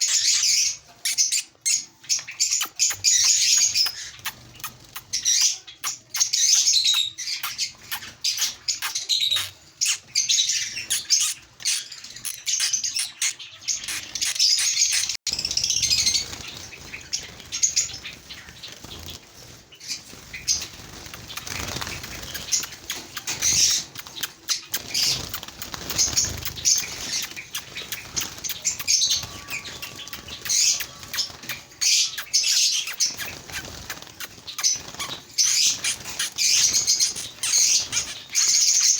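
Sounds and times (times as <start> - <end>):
small birds chirping: 0.0 - 38.9
wings fluttering against cage: 14.0 - 38.9.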